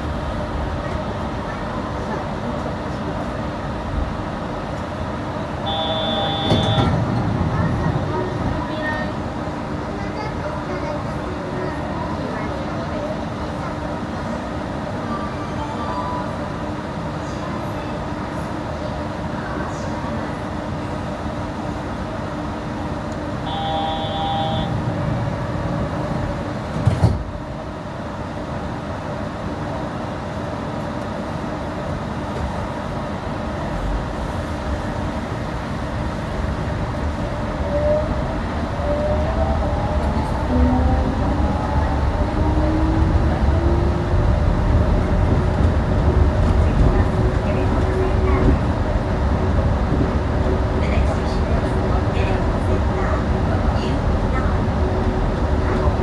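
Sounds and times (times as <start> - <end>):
train tyres rumbling: 30.4 - 56.0.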